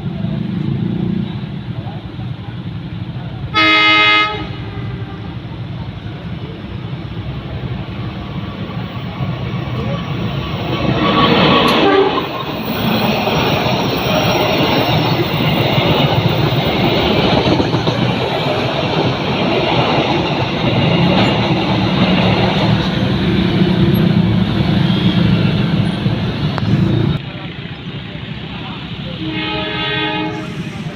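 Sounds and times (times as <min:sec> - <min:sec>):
train horn: 0:03.5 - 0:05.5, 0:11.6 - 0:12.3, 0:29.2 - 0:30.9
train wheels rushing over rails: 0:04.3 - 0:30.9.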